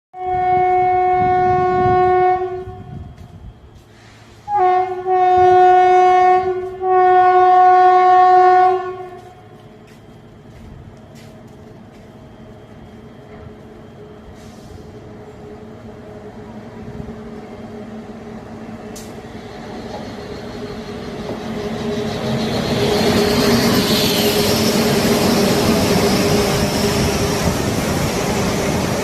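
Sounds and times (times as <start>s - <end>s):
locomotive air horn blasts: 0.2s - 3.1s, 4.4s - 9.5s
train running: 0.2s - 29.0s.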